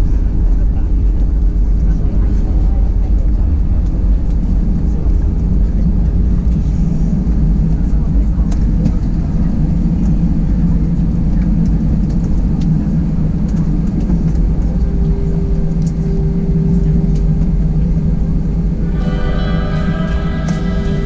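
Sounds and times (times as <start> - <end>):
aircraft cabin engine rumble: 0.0 - 21.0
steady hum: 11.7 - 21.0
music: 14.2 - 21.0.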